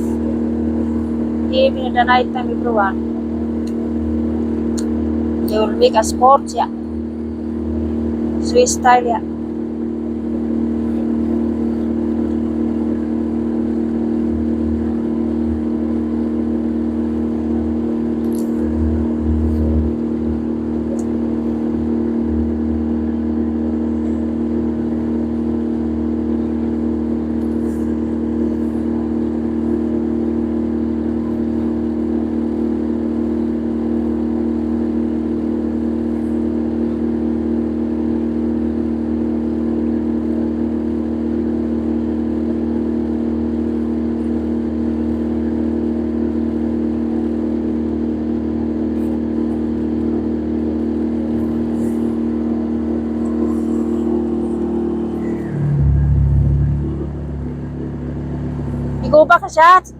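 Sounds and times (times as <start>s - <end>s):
low rumble: 0.0s - 32.0s, 49.0s - 59.9s
boat engine running: 0.0s - 59.9s.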